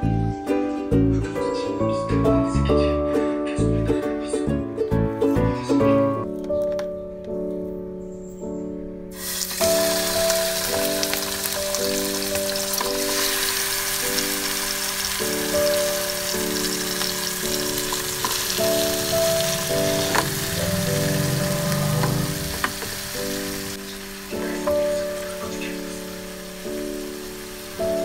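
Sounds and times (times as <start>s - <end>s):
background music chords: 0.0s - 28.0s
chicken sizzling in a frying pan: 9.2s - 28.0s.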